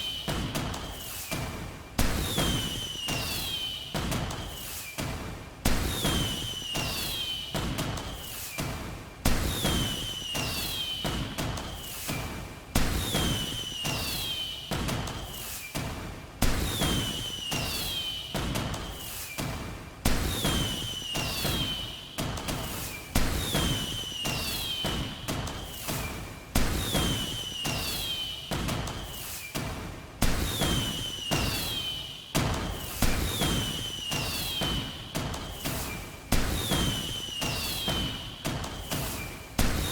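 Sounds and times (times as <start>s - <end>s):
fireworks bangs and booms: 0.0s - 39.9s
fireworks bangs: 20.1s - 29.4s, 30.2s - 39.9s
high falling whistle: 33.3s - 35.9s, 36.6s - 38.3s.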